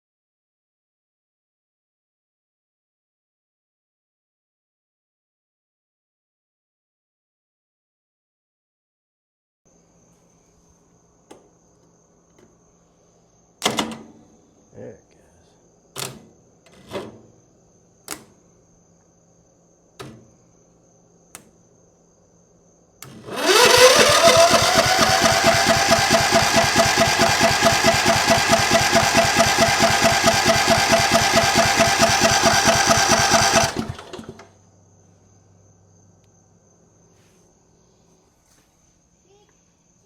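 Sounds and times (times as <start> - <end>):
lawn tractor engine starting: 23.0 - 34.6.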